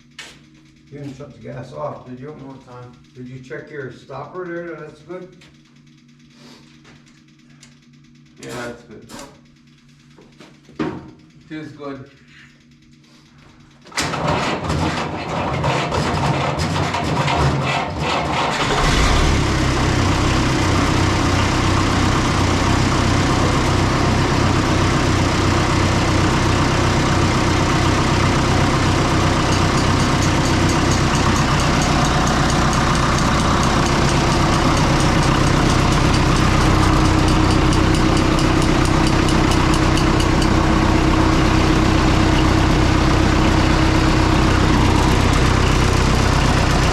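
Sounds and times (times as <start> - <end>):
tractor engine cranking: 18.0 - 46.9
tractor engine idling: 18.5 - 46.9.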